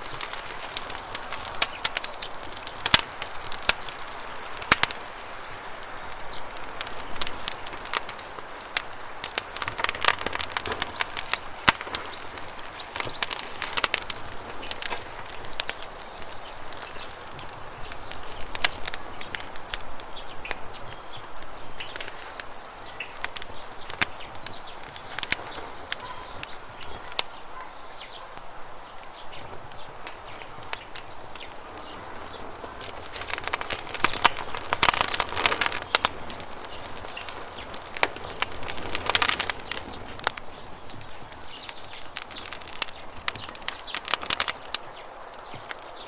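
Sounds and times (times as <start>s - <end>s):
campfire crackling and popping: 0.0s - 46.0s
bird chirps: 14.7s - 44.2s.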